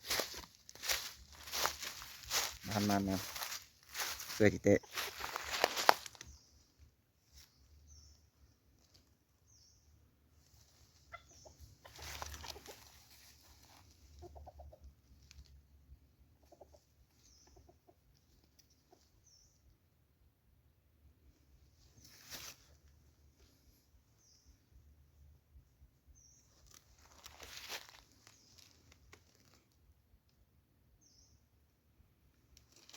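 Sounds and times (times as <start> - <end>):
junglefowl clucking: 11.0 - 15.0, 16.2 - 19.2.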